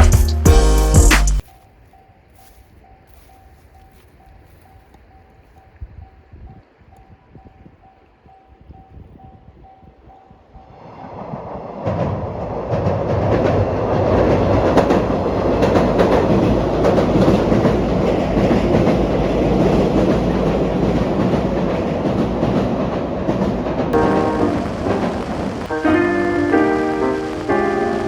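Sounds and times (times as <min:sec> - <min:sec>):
train rumbling on rails: 0:03.1 - 0:28.0
wheels clacking over rail joints: 0:11.9 - 0:28.0.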